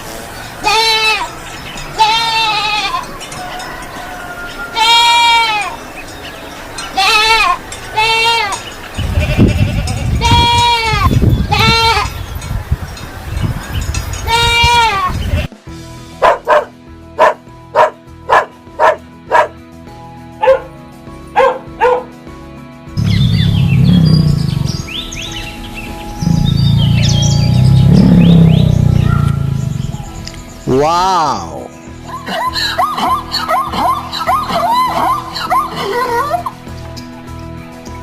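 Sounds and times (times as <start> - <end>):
goat bleating: 0.6 - 1.3, 1.9 - 3.1, 4.7 - 5.8, 6.9 - 12.1, 14.3 - 15.6.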